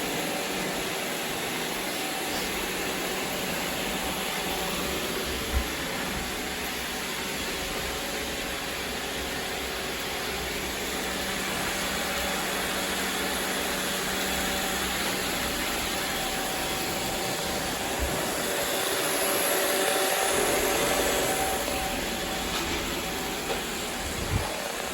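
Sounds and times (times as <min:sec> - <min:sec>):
robot vacuum cleaner whirring: 0:00.0 - 0:24.9.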